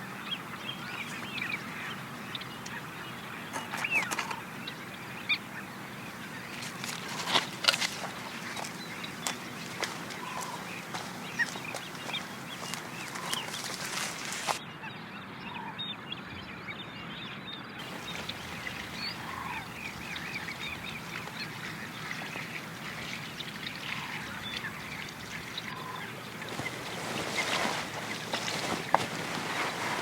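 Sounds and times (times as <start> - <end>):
birds chirping: 0.0 - 30.0
lower bird call: 7.1 - 14.6.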